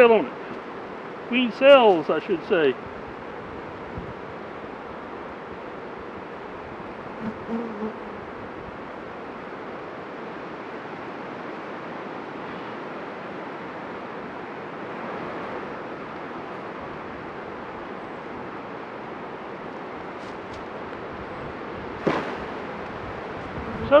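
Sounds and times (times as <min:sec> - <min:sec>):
honeybees buzzing: 0:06.8 - 0:09.3.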